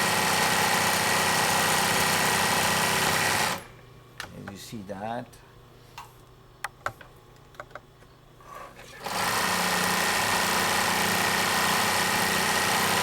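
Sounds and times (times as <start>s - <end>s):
sewing machine running: 0.0s - 3.7s, 9.0s - 13.0s.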